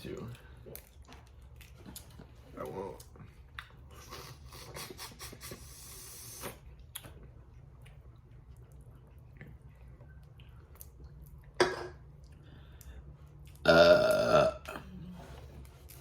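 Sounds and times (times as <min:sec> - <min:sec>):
person burping: 0:13.6 - 0:14.8.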